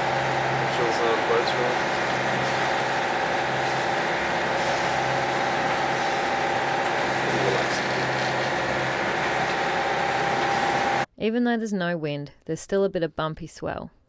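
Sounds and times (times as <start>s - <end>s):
boat engine thrumming: 0.0s - 11.1s.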